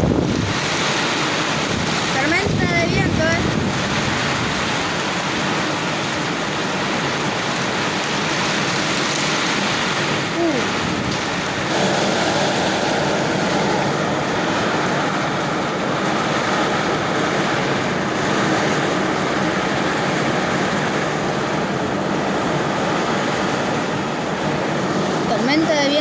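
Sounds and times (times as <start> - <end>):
strong storm wind roaring: 0.0 - 26.0.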